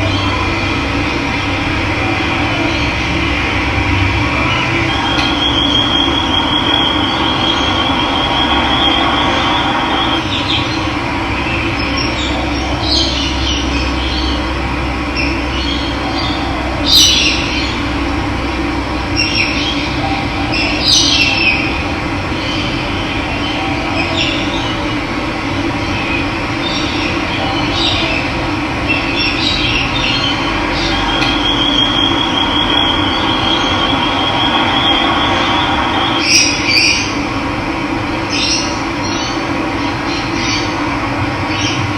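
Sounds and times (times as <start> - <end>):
birds chirping: 0.0 - 18.0, 19.0 - 37.3
thin high trill: 1.4 - 10.4, 30.6 - 37.2.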